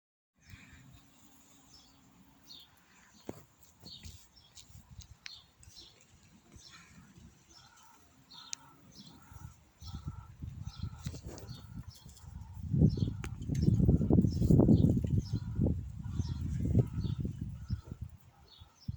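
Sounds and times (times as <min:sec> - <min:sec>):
faint bird chirps: 0:05.3 - 0:18.9.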